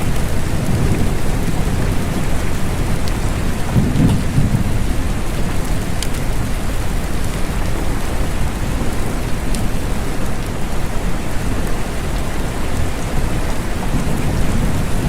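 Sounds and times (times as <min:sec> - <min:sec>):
low rumble of thunder: 0:00.0 - 0:09.2, 0:12.7 - 0:15.0
steady rain: 0:00.0 - 0:15.0
water drip ticks: 0:05.4 - 0:06.5.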